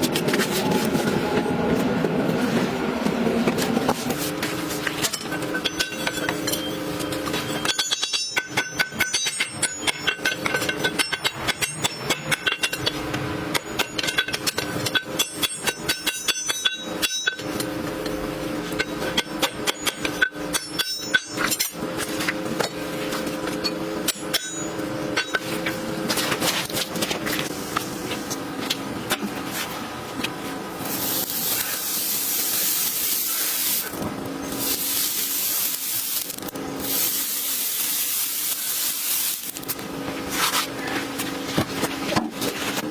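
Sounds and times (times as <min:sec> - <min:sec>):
hammer striking horseshoe on anvil: 0:05.1 - 0:17.6, 0:18.8 - 0:21.7, 0:23.6 - 0:25.5
steady hiss: 0:30.8 - 0:39.7.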